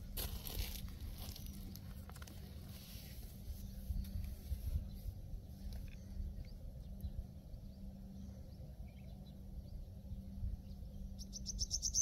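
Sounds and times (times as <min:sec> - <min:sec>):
faint low rumble: 0:00.0 - 0:12.0
steady low hum: 0:00.0 - 0:12.0
bird chirping: 0:04.8 - 0:12.0.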